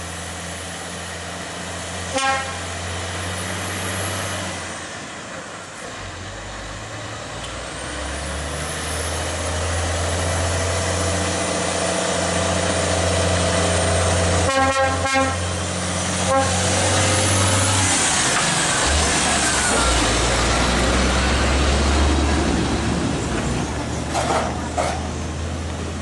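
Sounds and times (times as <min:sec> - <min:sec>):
truck diesel engine under load: 0:00.0 - 0:26.0
truck horn honks: 0:02.1 - 0:02.7, 0:14.4 - 0:15.5, 0:16.2 - 0:16.7.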